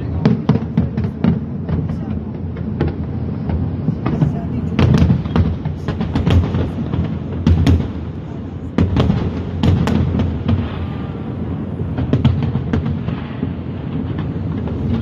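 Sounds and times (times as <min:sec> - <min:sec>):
fireworks bangs and cracks: 0:00.0 - 0:15.0
low rumble: 0:14.6 - 0:15.0.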